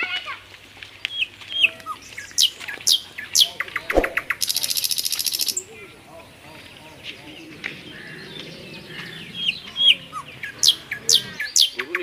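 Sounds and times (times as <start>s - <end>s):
birds calling: 0.9s - 12.0s
buzzy high bird trill: 4.0s - 5.6s.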